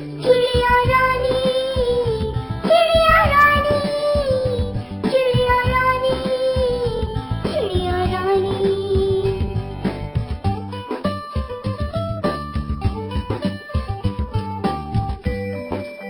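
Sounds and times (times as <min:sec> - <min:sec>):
nursery rhyme backing music: 0:00.0 - 0:16.0
child-like voice singing: 0:00.2 - 0:09.6.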